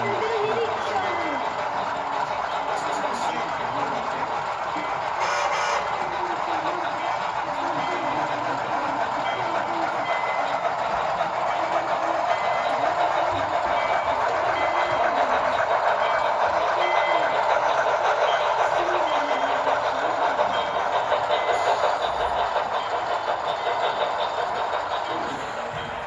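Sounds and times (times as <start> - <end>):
model locomotive sounds from speakers: 0.0 - 26.0
wheels running on rails: 0.0 - 26.0.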